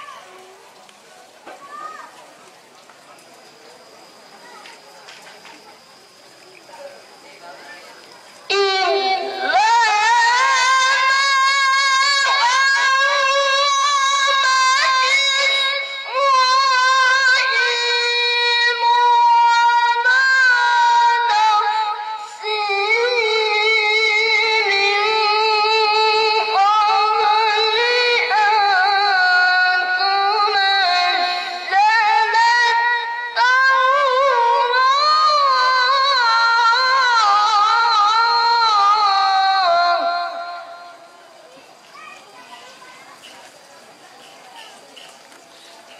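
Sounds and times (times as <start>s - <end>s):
child reciting melodically: 8.5s - 40.9s, 41.5s - 43.5s.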